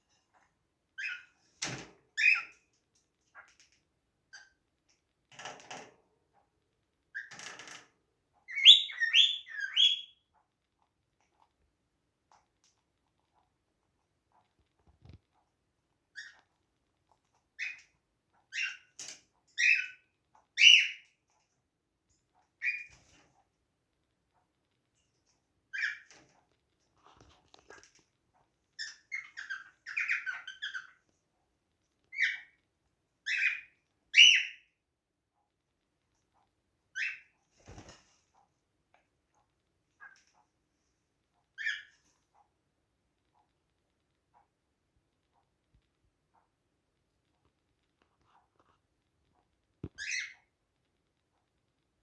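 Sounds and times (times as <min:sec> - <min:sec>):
cockatiel chirping: 0:01.0 - 0:01.3, 0:02.2 - 0:02.6, 0:08.4 - 0:10.2, 0:16.1 - 0:16.5, 0:17.6 - 0:19.0, 0:19.6 - 0:21.1, 0:22.6 - 0:23.0, 0:25.7 - 0:26.2, 0:28.8 - 0:31.0, 0:32.1 - 0:32.6, 0:33.2 - 0:34.7, 0:36.9 - 0:37.4, 0:41.6 - 0:42.0, 0:49.8 - 0:50.5.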